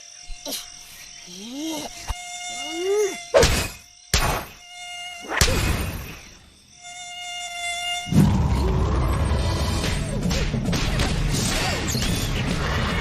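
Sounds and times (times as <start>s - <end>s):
cartoon mosquito buzz: 0.0s - 8.6s.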